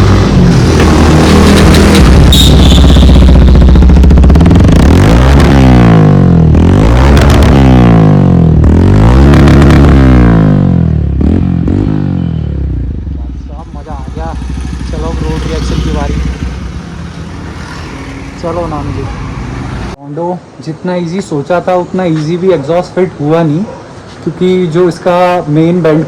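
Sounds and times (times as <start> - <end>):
motorcycle engine idling and revving: 0.0 - 20.0.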